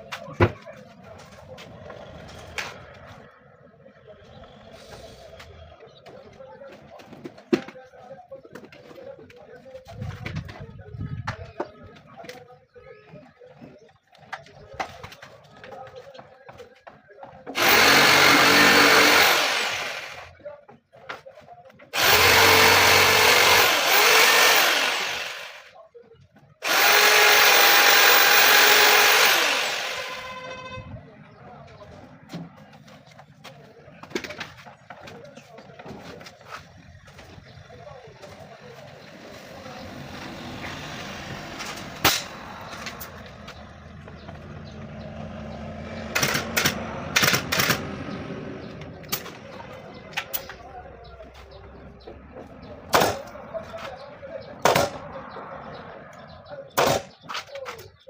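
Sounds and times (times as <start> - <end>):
power tool whining: 17.5 - 20.3, 22.0 - 25.7, 26.6 - 30.8.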